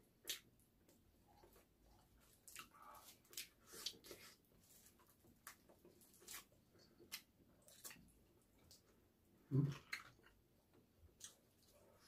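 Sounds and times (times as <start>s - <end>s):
person chewing: 0.2s - 0.5s, 1.3s - 8.9s, 9.6s - 10.4s, 11.1s - 12.0s.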